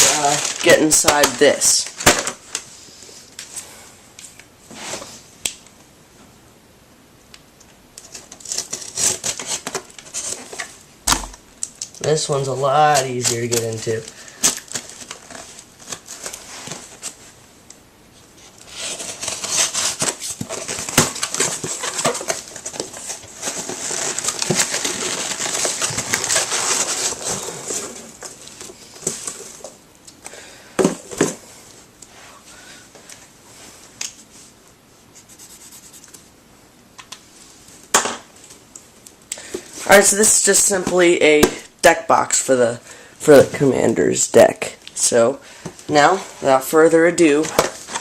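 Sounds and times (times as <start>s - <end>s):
packaging tearing and crinkling: 0.0s - 2.6s, 8.0s - 17.2s, 18.6s - 29.6s.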